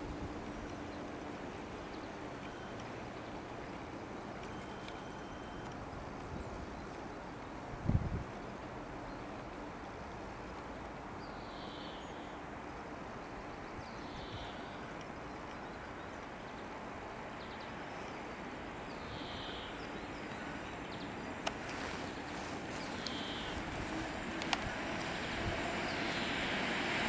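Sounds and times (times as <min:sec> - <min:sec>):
distant electric train approaching: 0:08.2 - 0:27.0.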